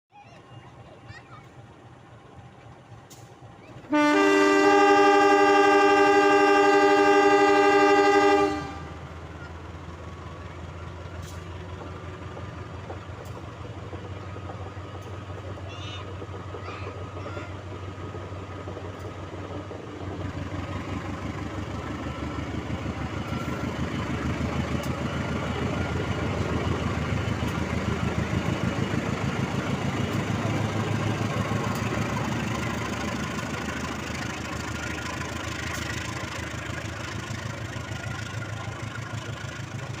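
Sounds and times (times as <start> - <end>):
locomotive engine running: 0.2 - 40.0
locomotive horn blast: 3.9 - 9.0.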